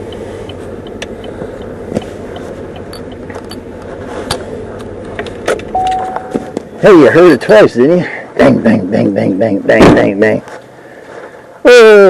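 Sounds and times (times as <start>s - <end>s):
truck engine running: 0.0s - 7.4s.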